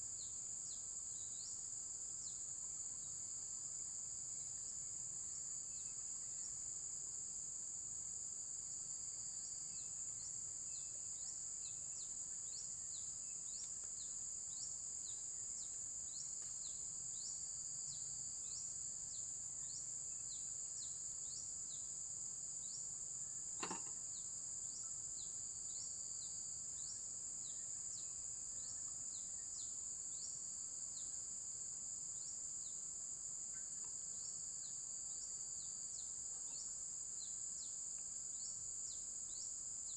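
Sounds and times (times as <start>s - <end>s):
insect chorus: 0.0s - 39.9s
short insect chirps: 9.4s - 31.2s
sharp click: 23.6s - 24.0s.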